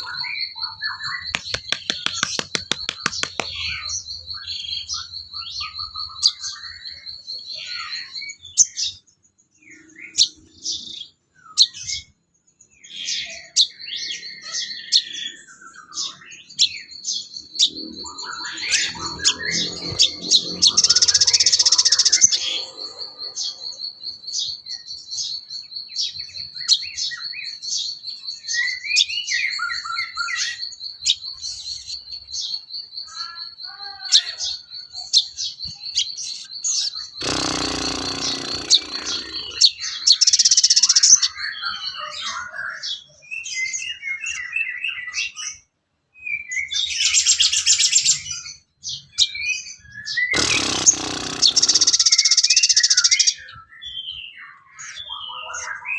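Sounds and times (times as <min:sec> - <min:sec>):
harsh rasping bird calls: 0:00.0 - 0:04.9, 0:16.6 - 0:23.8, 0:33.0 - 0:41.4, 0:50.1 - 0:53.5
high rattling bird trill: 0:00.0 - 0:05.2, 0:17.2 - 0:24.0, 0:35.6 - 0:41.4, 0:50.2 - 0:53.4.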